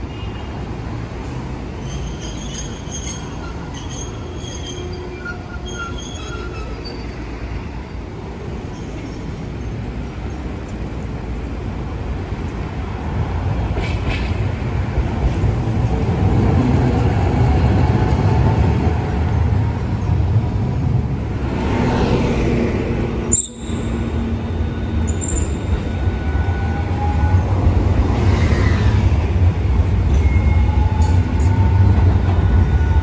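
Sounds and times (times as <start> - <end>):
tram wheels squealing: 0.0 - 10.6, 23.2 - 33.0
traffic rumble: 0.0 - 33.0
tram running on street track: 0.0 - 33.0.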